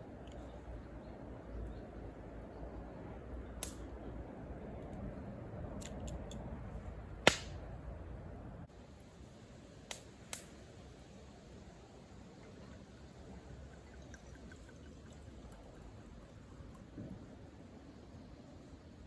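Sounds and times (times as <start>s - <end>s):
campfire hissing: 8.7s - 19.0s.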